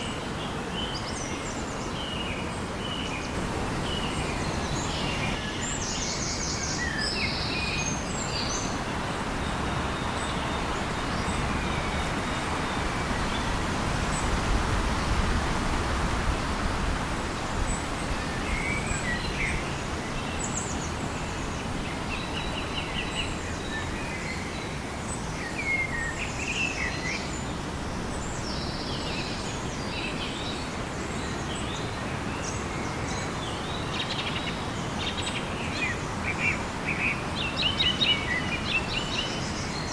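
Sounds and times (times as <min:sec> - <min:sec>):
birds chirping and calling: 0:03.3 - 0:05.8
steady rushing hiss: 0:03.3 - 0:06.2.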